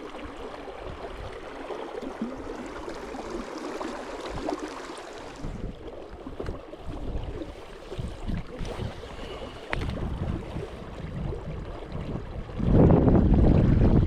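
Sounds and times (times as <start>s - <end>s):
wind buffeting microphone: 5.2s - 14.0s.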